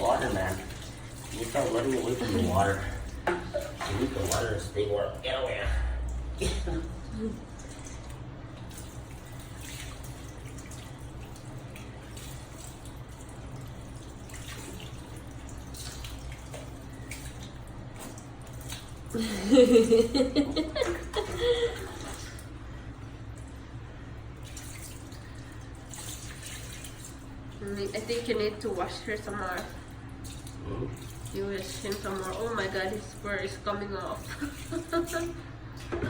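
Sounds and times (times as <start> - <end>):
water dripping and trickling: 0.0 - 5.3, 6.0 - 36.0
steady low hum: 0.0 - 36.0.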